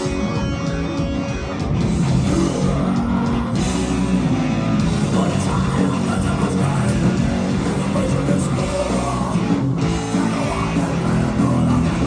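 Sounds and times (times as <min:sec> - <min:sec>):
distorted electric guitars: 0:00.0 - 0:12.0
drums: 0:00.0 - 0:12.0
person singing: 0:02.3 - 0:04.0, 0:05.0 - 0:12.0.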